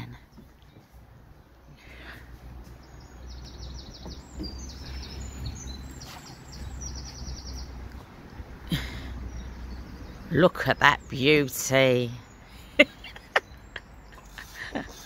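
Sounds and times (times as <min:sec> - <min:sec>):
bird chirps: 0:00.0 - 0:08.1
songbird trilling: 0:02.8 - 0:07.9.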